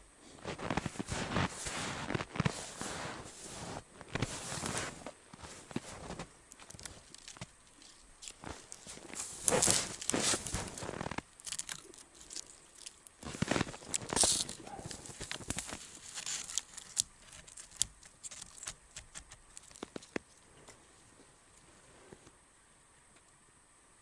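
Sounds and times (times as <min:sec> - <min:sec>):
crunching in snow: 0:00.3 - 0:22.2
sharp snaps and clicks: 0:06.5 - 0:20.4.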